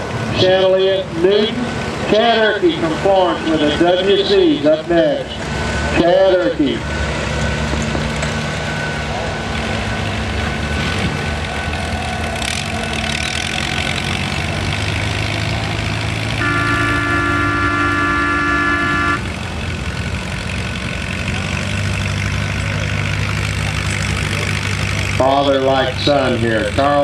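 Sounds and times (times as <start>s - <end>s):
tractor engines running: 0.0s - 27.0s
horn sounding a chord: 16.4s - 19.2s.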